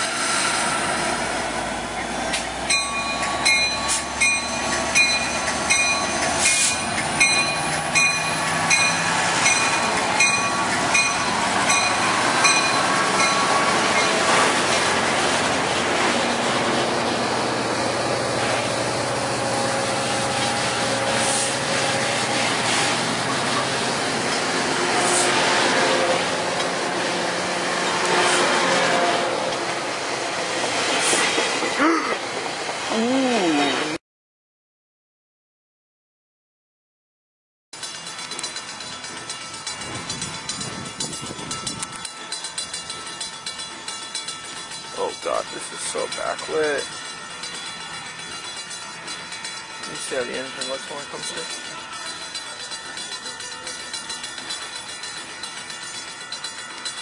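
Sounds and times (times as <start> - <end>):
diesel locomotive engine: 0.0 - 34.0, 37.8 - 57.0
train wheel and rail noise: 0.0 - 34.0, 37.8 - 57.0
bell ringing: 2.7 - 14.8, 37.8 - 57.0.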